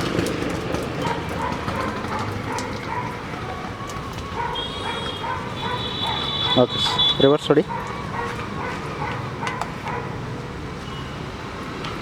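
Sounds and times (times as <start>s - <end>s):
dog yapping: 1.0s - 3.6s, 4.4s - 10.2s.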